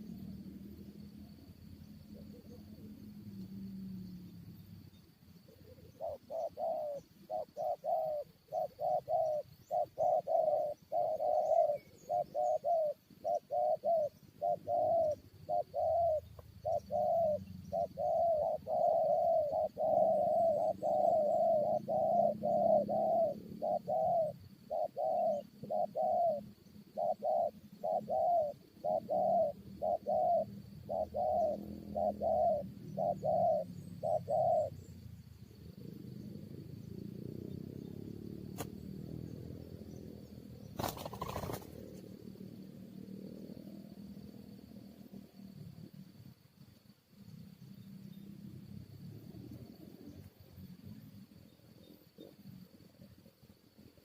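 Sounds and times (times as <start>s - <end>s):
doves cooing rapidly: 5.4s - 45.1s.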